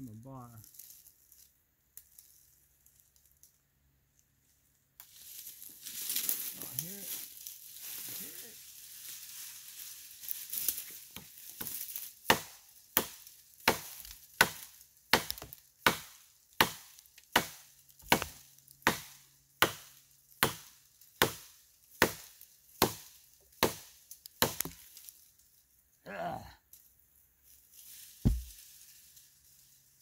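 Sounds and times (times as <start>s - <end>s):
tool striking wood: 12.3s - 16.8s, 17.4s - 20.6s, 28.3s - 28.6s.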